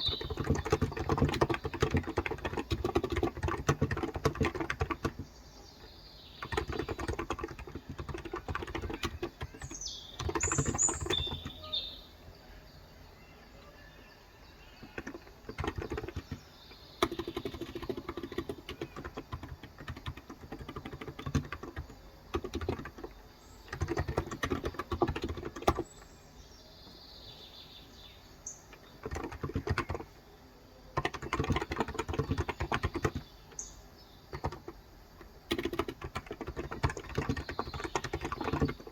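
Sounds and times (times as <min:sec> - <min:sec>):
typing on a keyboard: 0:00.0 - 0:05.4, 0:06.4 - 0:11.7, 0:14.8 - 0:26.0, 0:28.6 - 0:30.2, 0:30.9 - 0:33.7, 0:34.3 - 0:38.9
birds chirping: 0:00.0 - 0:38.9.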